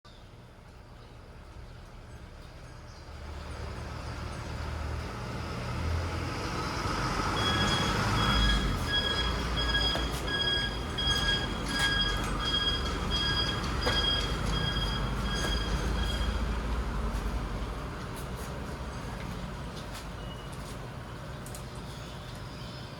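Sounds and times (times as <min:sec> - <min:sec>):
large vehicle rumble: 0:01.1 - 0:22.9
repeating beep: 0:07.4 - 0:16.4.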